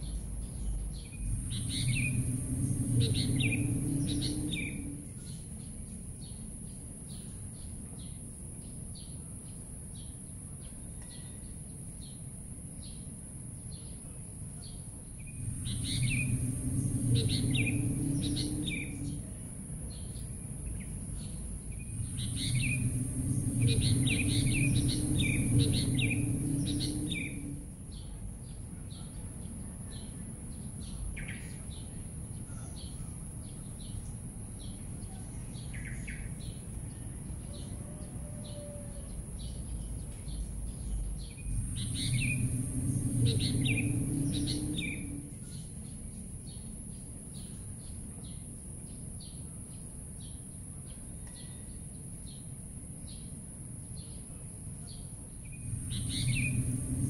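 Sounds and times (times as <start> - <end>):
low rumble: 0.0 - 6.2, 15.1 - 32.4, 38.9 - 46.8, 55.3 - 57.0
birds chirping: 0.0 - 6.5, 14.6 - 37.8, 38.4 - 46.8, 54.9 - 57.0
steady high hiss: 0.0 - 7.6, 14.4 - 37.4, 39.2 - 50.8, 51.9 - 57.0.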